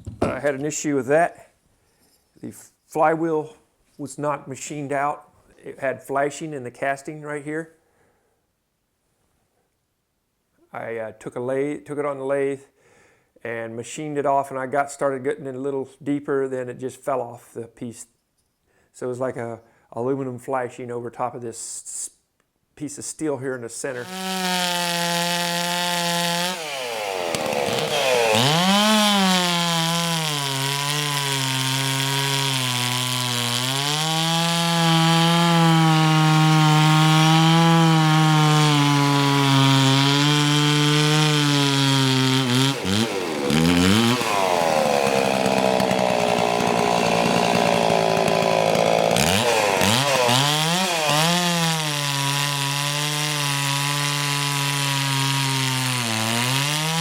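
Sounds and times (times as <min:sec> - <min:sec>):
chainsaw engine revving: 0:23.9 - 0:57.0.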